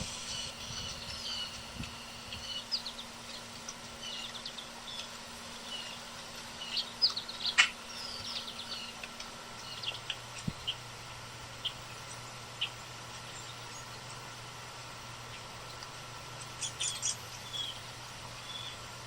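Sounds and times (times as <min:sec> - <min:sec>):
young woodpecker begging chirps: 0:00.0 - 0:10.8, 0:16.4 - 0:18.8.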